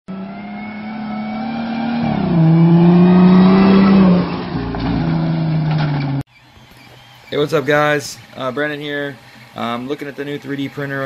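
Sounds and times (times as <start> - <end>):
car engine driving past: 0.1 - 6.2.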